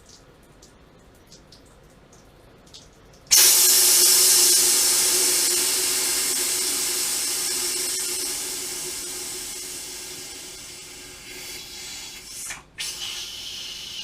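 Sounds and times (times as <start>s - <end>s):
faint water drips: 0.0s - 14.0s
loud hiss of spraying water: 3.3s - 14.0s.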